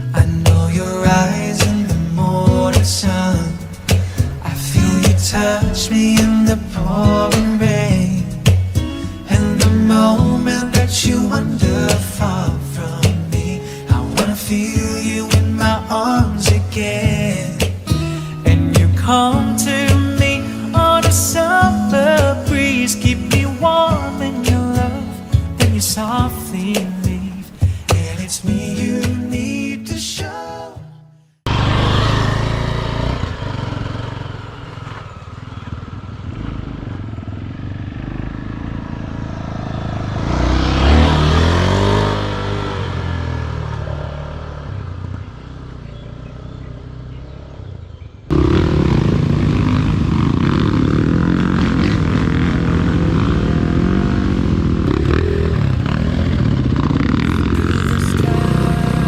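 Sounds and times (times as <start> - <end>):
dirt bike engines running: 0.0 - 29.4, 31.5 - 59.0
dirt bike revving past: 1.3 - 15.3, 31.5 - 47.7, 48.3 - 59.0.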